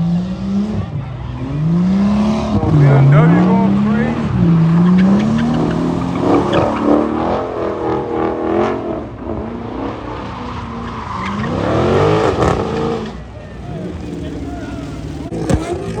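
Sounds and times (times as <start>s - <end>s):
car engine revving: 0.0s - 16.0s
tyre squeal: 4.5s - 7.2s, 10.8s - 16.0s.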